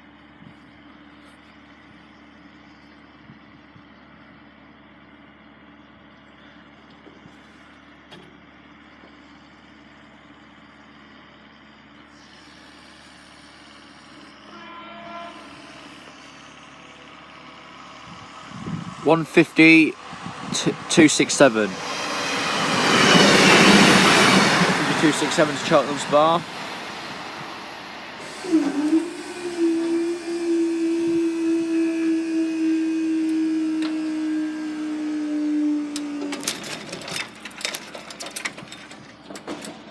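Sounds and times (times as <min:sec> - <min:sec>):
vehicle engine idling: 0:00.0 - 0:14.5
rising hiss: 0:20.3 - 0:36.4.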